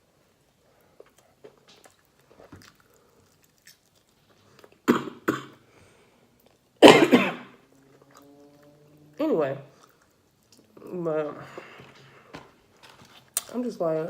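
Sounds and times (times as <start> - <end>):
woman coughing: 4.9 - 5.6, 6.8 - 7.5.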